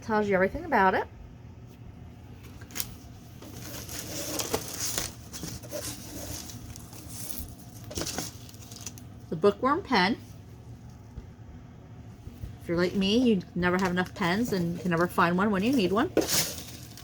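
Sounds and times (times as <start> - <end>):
packaging rustling and crinkling: 2.4 - 9.2, 14.0 - 17.0.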